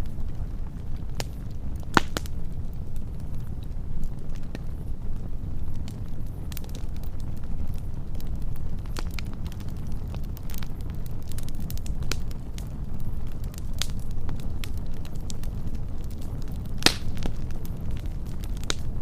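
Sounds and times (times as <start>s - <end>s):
wood fire crackling: 0.0s - 19.0s
sharp pop from fire: 1.2s - 2.3s, 16.8s - 17.4s, 18.6s - 18.8s.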